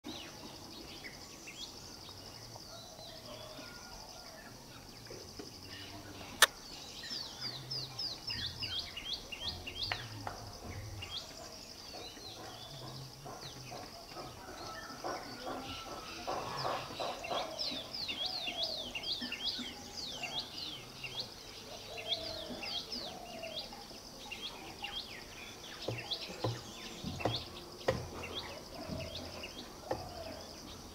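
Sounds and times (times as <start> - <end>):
small birds chirping: 0.1 - 30.9.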